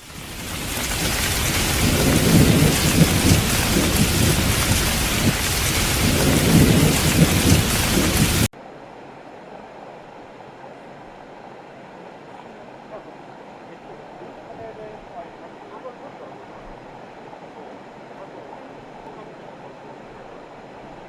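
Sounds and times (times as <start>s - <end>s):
heavy rain: 0.0s - 8.5s
rolling thunder: 0.0s - 8.5s
steady rushing noise: 0.0s - 12.2s.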